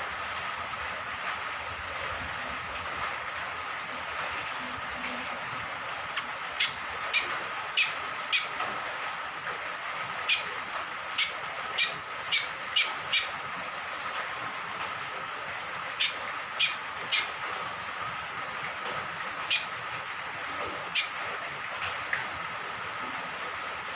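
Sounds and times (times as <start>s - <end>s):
hiss of falling rain: 0.0s - 23.9s.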